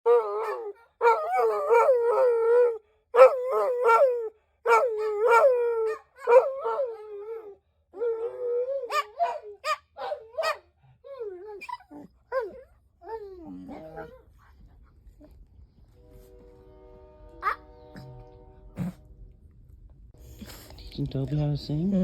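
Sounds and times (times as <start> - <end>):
dog howling: 0.0 - 14.2.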